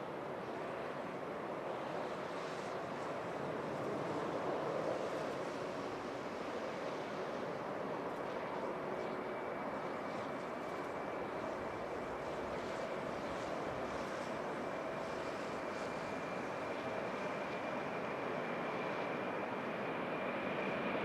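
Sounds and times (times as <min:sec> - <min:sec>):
faint high whine: 0:00.0 - 0:21.0
distant jet engines rushing: 0:00.1 - 0:21.0.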